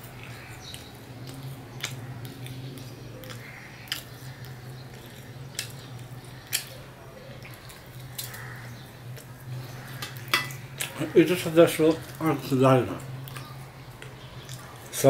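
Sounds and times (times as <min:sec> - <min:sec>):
steady low hum: 0:00.0 - 0:15.0
person chewing with mouth clicks: 0:00.2 - 0:06.8.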